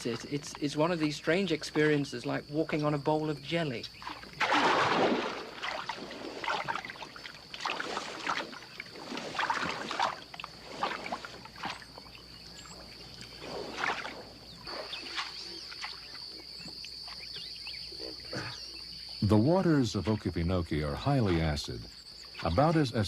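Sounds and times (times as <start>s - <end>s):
high insect drone: 0.0s - 23.0s
squelching footsteps in wet peat: 3.9s - 17.6s.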